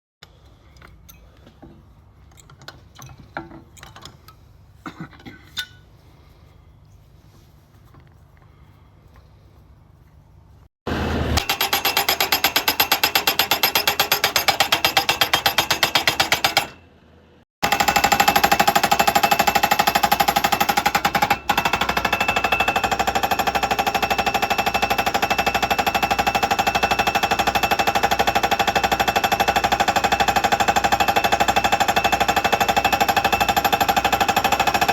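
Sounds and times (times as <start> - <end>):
hydraulic hammer pounding: 11.4 - 16.8, 17.6 - 34.9.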